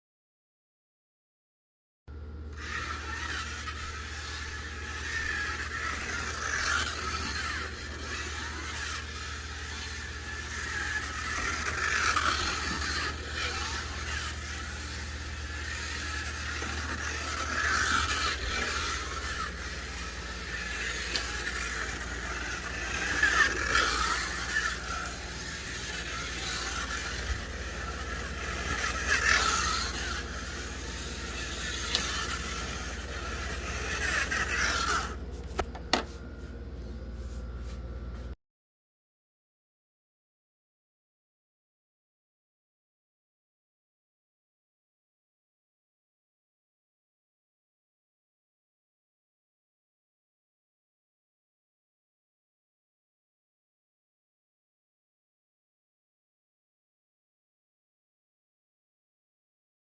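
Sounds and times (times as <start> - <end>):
slot car motor whining: 2.1 - 36.1.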